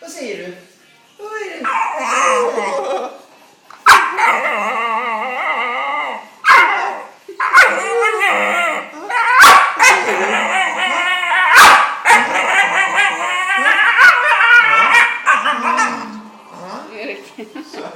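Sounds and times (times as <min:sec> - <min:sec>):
dog moaning: 0:01.6 - 0:03.2, 0:04.1 - 0:17.0
dog yipping: 0:03.8 - 0:04.7, 0:06.4 - 0:16.1.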